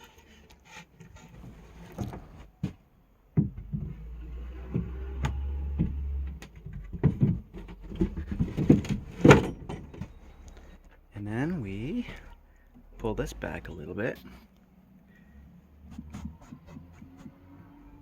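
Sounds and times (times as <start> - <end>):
wooden and metal knocks: 1.9 - 4.0, 4.6 - 10.3.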